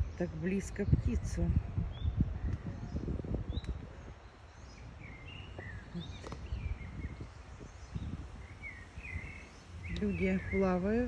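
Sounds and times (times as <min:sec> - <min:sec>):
low wind rumble: 0:00.0 - 0:11.0
small birds chirping: 0:00.0 - 0:11.0.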